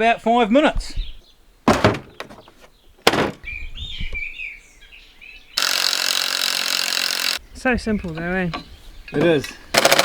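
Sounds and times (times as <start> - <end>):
small birds chirping: 0.0 - 5.8, 7.2 - 9.7
sharp knocks: 1.7 - 3.4
power tool running: 5.6 - 7.4.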